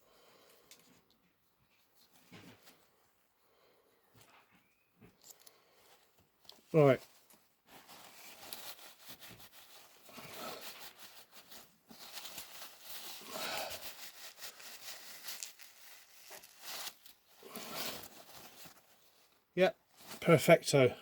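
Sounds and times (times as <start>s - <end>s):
cloth rubbing and rustling: 5.7s - 20.4s.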